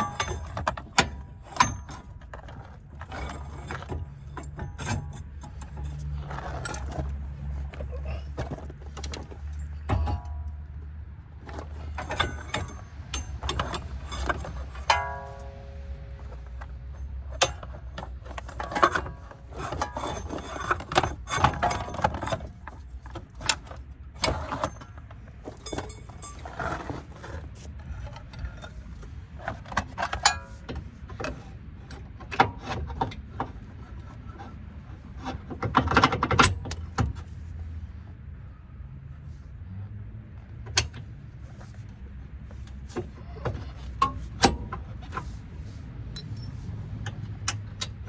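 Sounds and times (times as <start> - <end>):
metal tools clinking and scraping: 0.0 - 30.8, 42.5 - 48.0.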